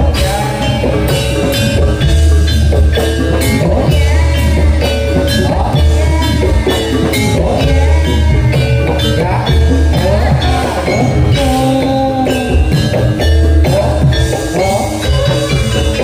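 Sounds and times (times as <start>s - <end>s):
bending melody line: 0.0s - 16.0s
drums striking a steady beat: 0.0s - 16.0s
heavy bass: 0.0s - 16.0s.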